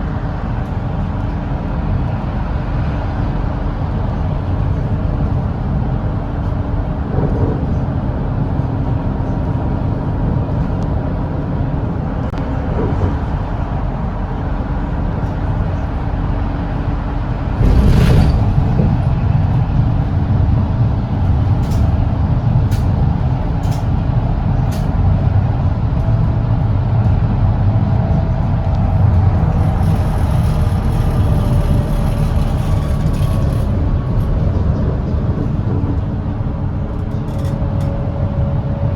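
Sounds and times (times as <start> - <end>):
road noise: 17.2 - 22.0.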